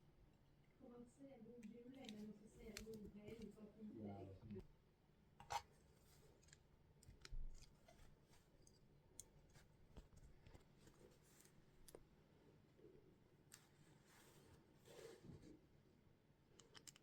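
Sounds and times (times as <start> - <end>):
plastic bricks clicking together: 16.6 - 17.0.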